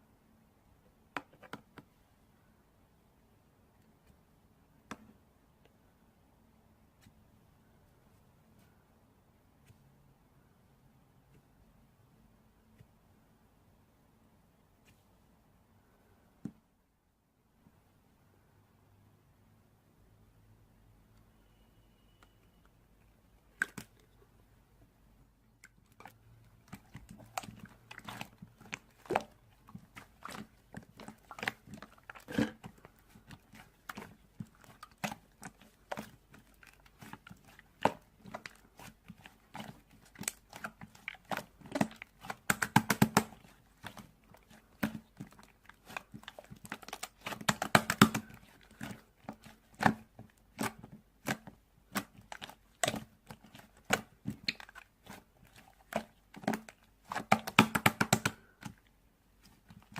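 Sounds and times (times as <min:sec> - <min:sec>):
crunching and crackling: 0:25.6 - 0:57.8.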